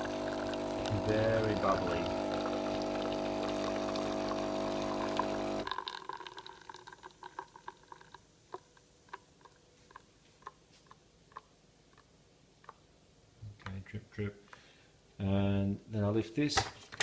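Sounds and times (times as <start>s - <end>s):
espresso machine pump humming: 0.0s - 7.0s
coffee dripping into cup: 0.0s - 10.6s.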